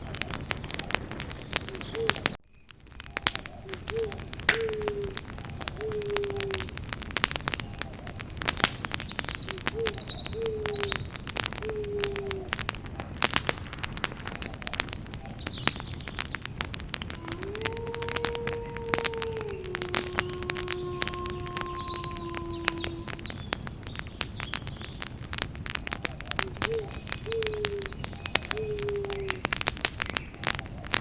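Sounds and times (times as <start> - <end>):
bird calling: 0.0 - 2.4, 3.4 - 6.7, 9.2 - 12.6, 16.6 - 24.0, 26.4 - 29.5
campfire crackling and popping: 0.0 - 31.0.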